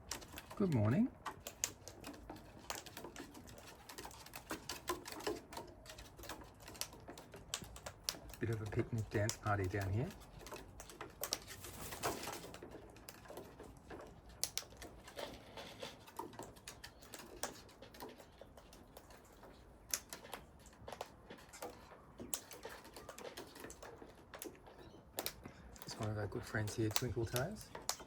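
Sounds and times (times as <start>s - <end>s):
beaks pecking at food: 0.0s - 28.0s
soft bird calls: 14.7s - 28.0s.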